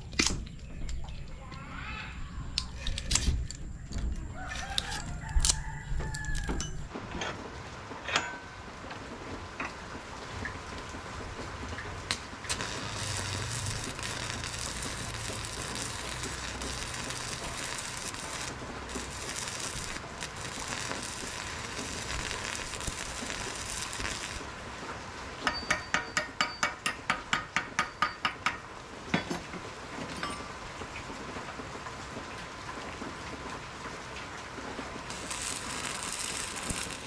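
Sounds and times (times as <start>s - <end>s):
steady sizzling hiss: 0.0s - 37.0s
hammer striking steel on anvil: 8.1s - 8.5s, 25.4s - 29.3s.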